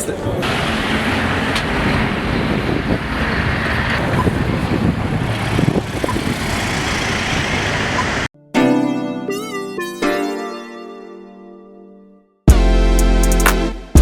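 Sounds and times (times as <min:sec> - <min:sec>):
street traffic rumble: 0:00.0 - 0:08.3.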